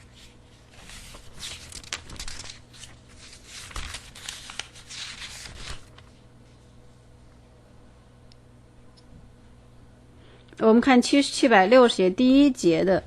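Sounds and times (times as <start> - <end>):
book pages rustling: 0.0 - 6.7.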